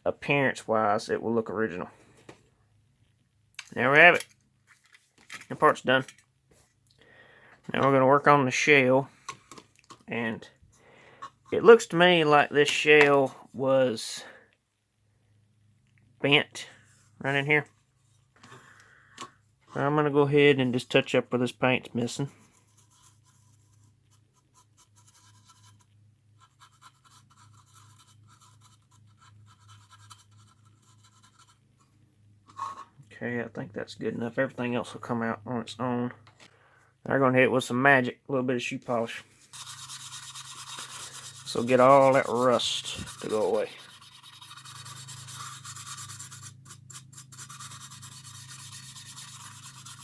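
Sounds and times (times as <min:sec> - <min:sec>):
paint applicator scratching: 0:39.4 - 0:50.0
rubbing polish onto metal: 0:39.5 - 0:50.0.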